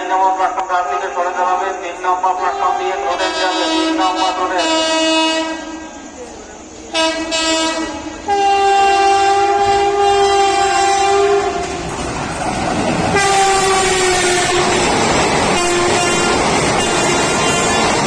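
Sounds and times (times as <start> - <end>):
train passing with rail clatter: 0.0 - 18.0
locomotive horn blast: 3.0 - 5.8, 6.9 - 11.8, 13.1 - 14.9, 15.5 - 18.0.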